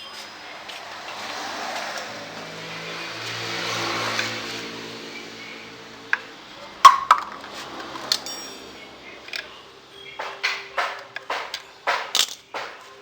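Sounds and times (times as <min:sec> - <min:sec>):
engine tone: 0:00.0 - 0:10.2
metal tools clinking: 0:06.8 - 0:13.0.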